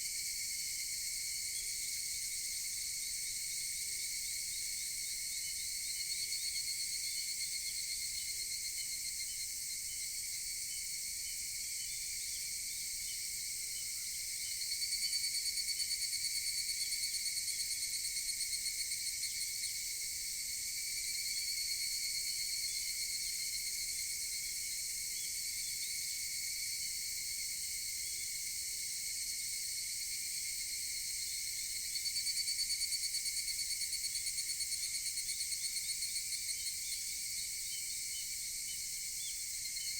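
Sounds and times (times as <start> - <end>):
cicadas calling in chorus: 20.6 - 39.9.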